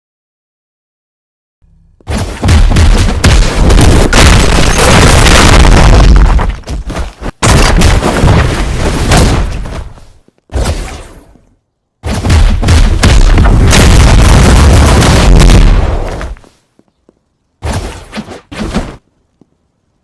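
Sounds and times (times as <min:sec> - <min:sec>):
loud distorted booming noise: 0:01.6 - 0:06.5, 0:12.0 - 0:16.0.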